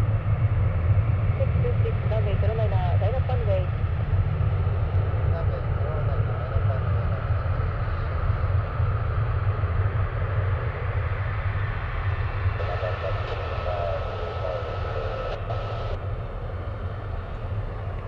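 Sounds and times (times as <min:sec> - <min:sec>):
jet engines rumbling: 0:00.0 - 0:18.0
muffled radio voice: 0:12.6 - 0:16.0.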